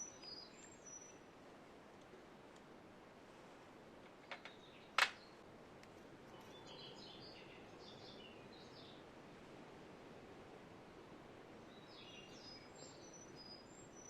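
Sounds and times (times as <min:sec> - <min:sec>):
faint bird chirps: 0:00.0 - 0:01.3, 0:11.6 - 0:14.0
low background hiss: 0:00.0 - 0:14.0.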